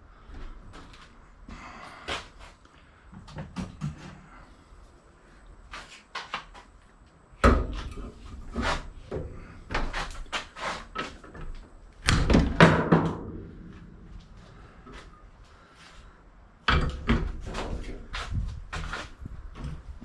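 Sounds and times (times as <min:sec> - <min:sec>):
knocks and clattering impacts: 0:07.4 - 0:14.1, 0:16.7 - 0:19.9.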